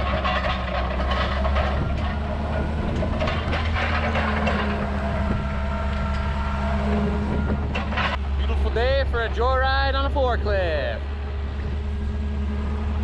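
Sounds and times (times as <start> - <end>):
knocks and rattles: 0.0 - 9.4
forklift engine running: 0.0 - 13.0.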